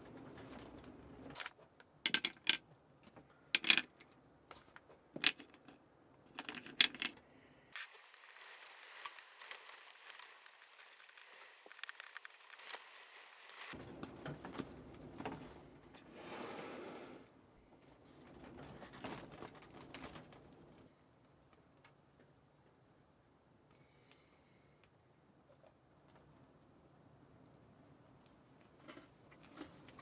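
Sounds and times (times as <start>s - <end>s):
clicks of small hard objects: 3.6s - 4.1s, 5.2s - 7.2s, 7.8s - 13.8s
steady hiss: 7.8s - 13.8s.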